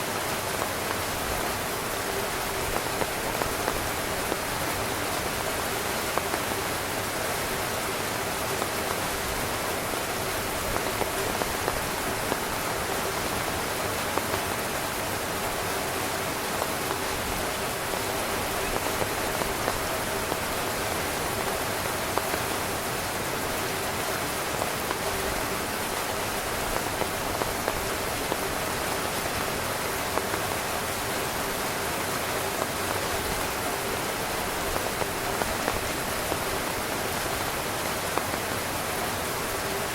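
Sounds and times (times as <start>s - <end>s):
heavy rain on a tent: 0.0s - 39.9s.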